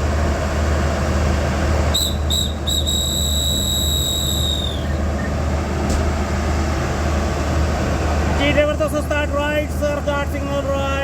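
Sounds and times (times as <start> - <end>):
low engine hum: 0.0 - 11.0
hand whistle blasts: 1.9 - 5.3.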